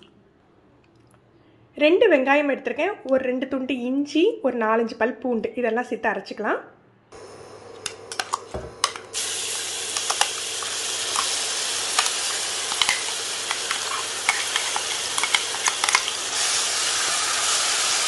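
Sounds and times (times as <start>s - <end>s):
paste sizzling in hot oil: 8.9s - 18.0s
spoon scraping metal: 11.1s - 18.0s.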